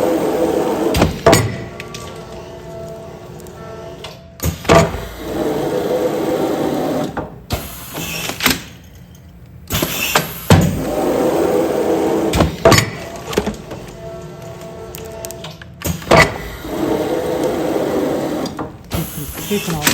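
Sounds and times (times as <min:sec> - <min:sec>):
air cylinders and valves clacking: 0:00.0 - 0:19.9
sealing machine running: 0:09.6 - 0:19.9.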